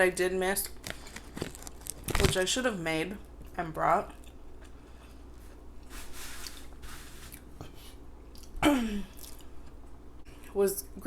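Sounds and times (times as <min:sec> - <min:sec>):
woman chewing food: 0:08.2 - 0:10.5.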